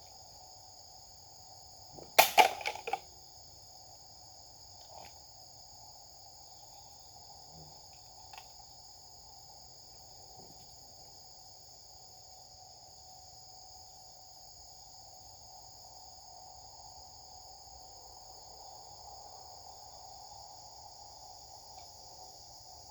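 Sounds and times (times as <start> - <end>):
insects chorus shrilling: 0.0 - 10.2.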